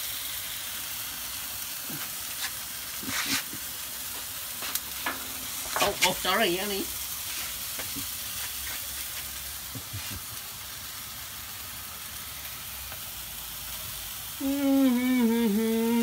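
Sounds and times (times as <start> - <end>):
food frying in oil: 0.0 - 16.0
person's drawn-out vocal sound: 14.4 - 16.0.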